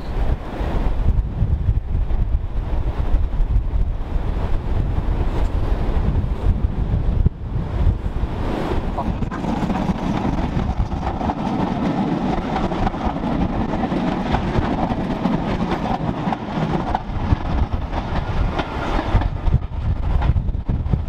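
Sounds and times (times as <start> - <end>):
steam train passing: 0.0 - 21.0
wheels clattering over rails: 9.0 - 20.7.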